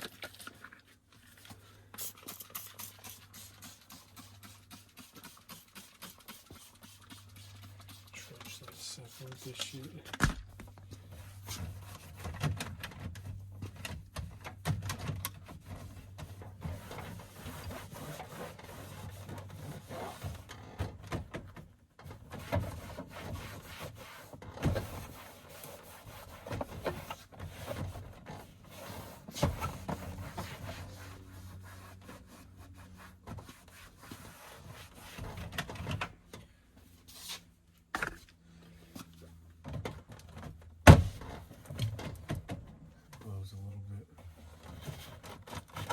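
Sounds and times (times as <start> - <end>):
rubbing and scraping plastic trim: 44.4 - 45.9.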